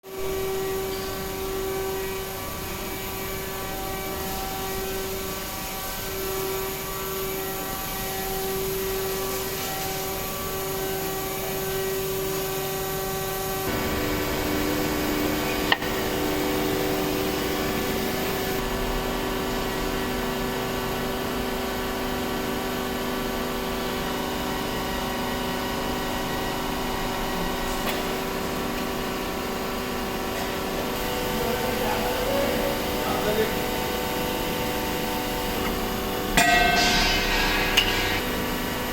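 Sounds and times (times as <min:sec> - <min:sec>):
machinery whining: 0:00.1 - 0:21.0.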